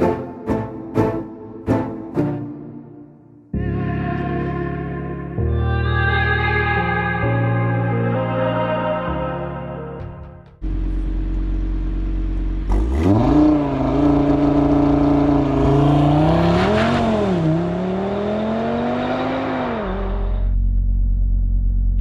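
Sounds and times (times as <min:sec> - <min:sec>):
car engine revving: 0:10.6 - 0:21.8.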